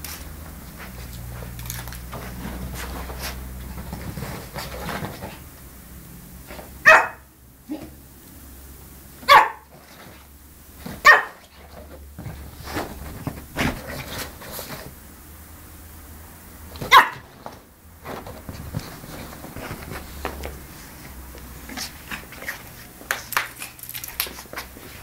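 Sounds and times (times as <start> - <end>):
puppy barking: 6.8 - 7.9, 9.2 - 9.7, 11.0 - 11.4, 16.8 - 17.2.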